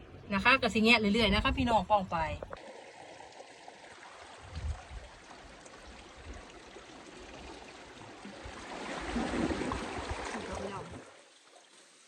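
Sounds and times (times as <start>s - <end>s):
sea water washing over rocks: 3.7s - 11.3s.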